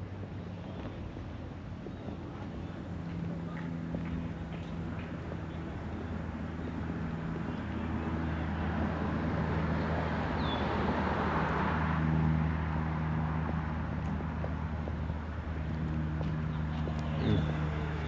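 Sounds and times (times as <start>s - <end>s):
low engine hum: 0.0s - 18.0s
vehicle passing: 8.1s - 18.0s.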